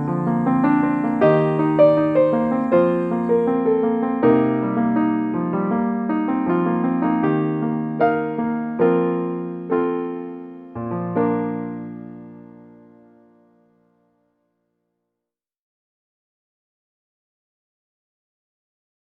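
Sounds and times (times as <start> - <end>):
gentle piano music: 0.0 - 14.3.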